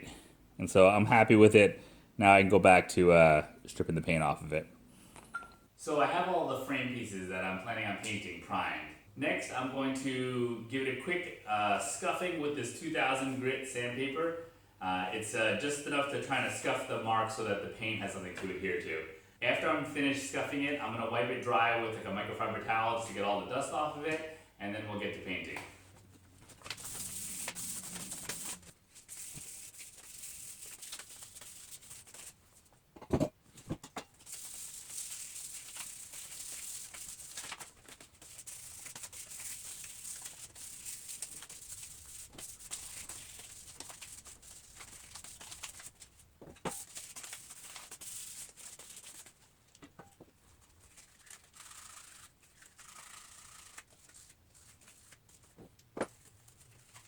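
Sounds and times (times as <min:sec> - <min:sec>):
sandpaper rubbing metal: 0:26.8 - 0:32.3, 0:34.2 - 0:37.4.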